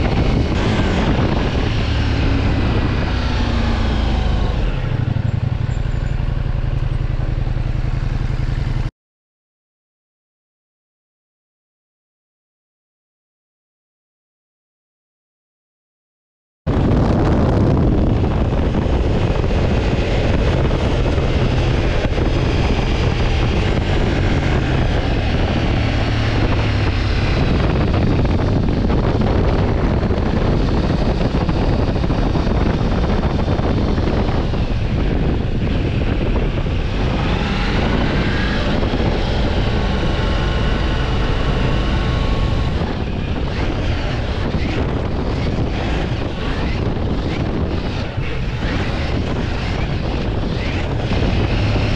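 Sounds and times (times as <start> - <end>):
motorcycle engine: 0.0 - 8.9, 16.7 - 51.9
wind rushing over microphone: 0.0 - 8.9, 16.7 - 51.9.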